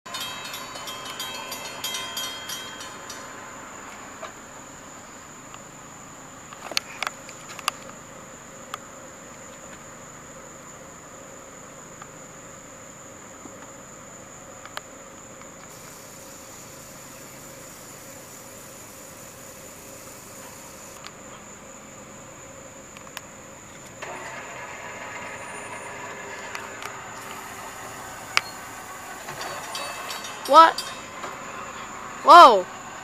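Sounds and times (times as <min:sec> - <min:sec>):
metallic ringing and rattling: 0:00.0 - 0:04.2, 0:27.3 - 0:32.0
insects chirring: 0:00.1 - 0:33.0.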